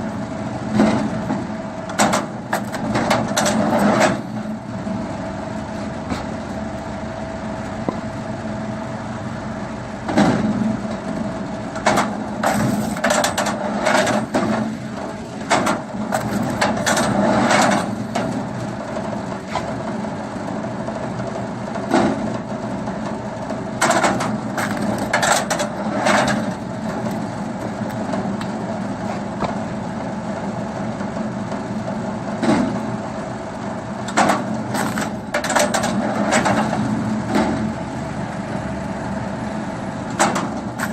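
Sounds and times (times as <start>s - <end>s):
wood splitting machine running: 0.1s - 9.0s, 9.9s - 40.9s
wood cracking and crunching: 15.5s - 17.1s, 23.9s - 28.2s, 34.7s - 35.9s.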